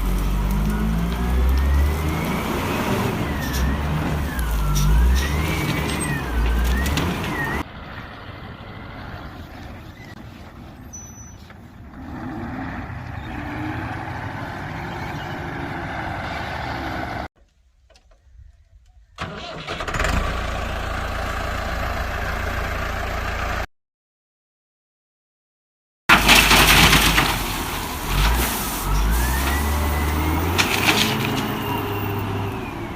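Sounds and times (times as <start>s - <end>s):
vehicle engine running: 20.1s - 23.6s.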